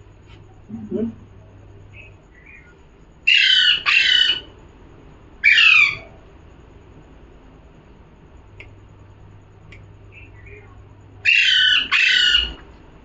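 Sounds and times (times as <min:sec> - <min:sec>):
parrot squawking: 0:03.3 - 0:04.5, 0:05.4 - 0:06.1, 0:11.2 - 0:12.6.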